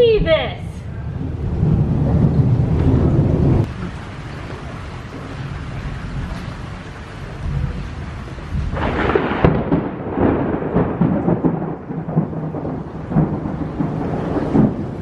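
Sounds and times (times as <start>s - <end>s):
heavy rain: 0.0s - 15.0s
thunder rumbling and clapping: 0.0s - 15.0s.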